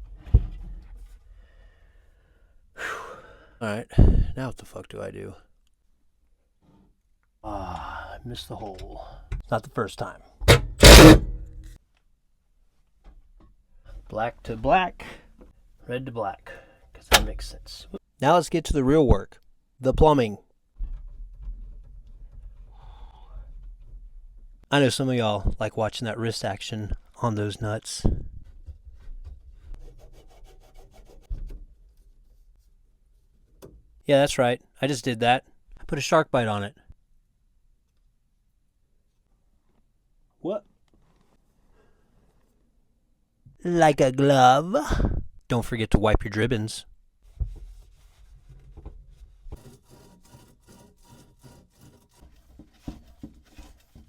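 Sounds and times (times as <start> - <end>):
rag wiping pipe fittings: 47.2 - 54.0.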